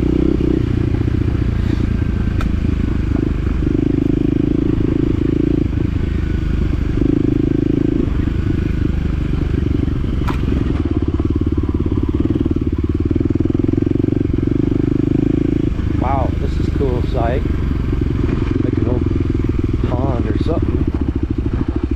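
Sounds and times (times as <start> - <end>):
vehicle engine droning: 0.0 - 21.9
sharp click: 2.4 - 2.6.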